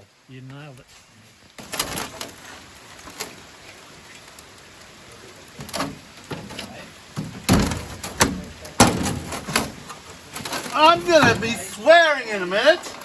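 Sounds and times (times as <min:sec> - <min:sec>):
background hiss: 0:00.0 - 0:13.0
metal parts knocking: 0:05.6 - 0:11.7.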